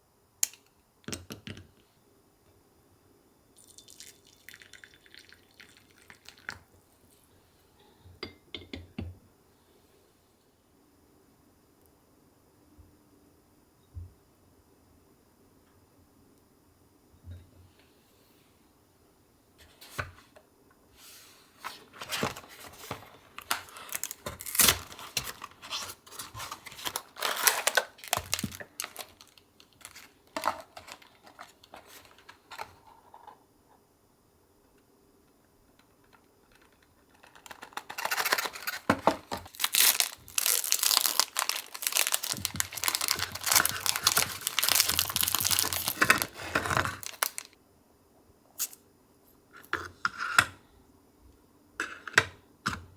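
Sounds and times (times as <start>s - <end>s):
packaging crinkling and tearing: 22.0s - 32.8s, 36.5s - 47.6s.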